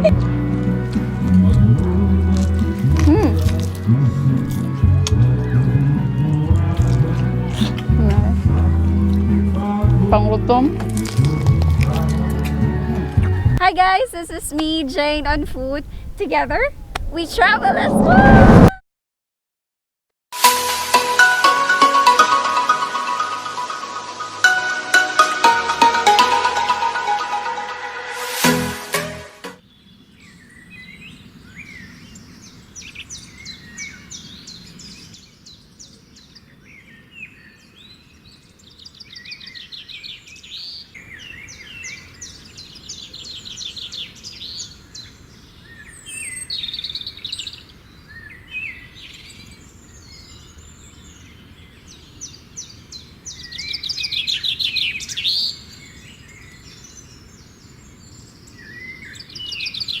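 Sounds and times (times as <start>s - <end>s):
birds singing and chirping: 29.7s - 60.0s.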